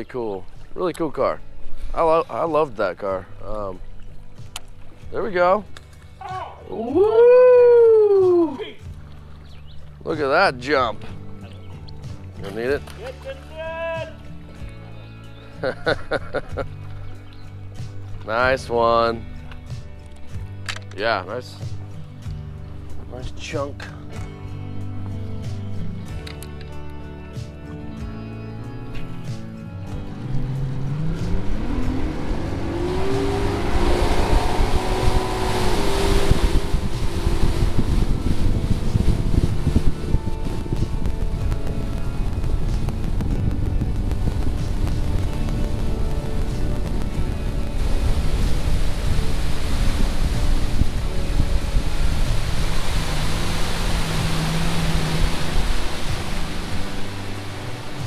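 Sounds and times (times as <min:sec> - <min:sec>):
churning wake water: 0:00.0 - 0:20.5, 0:27.4 - 0:58.0
outboard motor speeding up: 0:29.3 - 0:58.0
wind noise on microphone: 0:29.4 - 0:58.0.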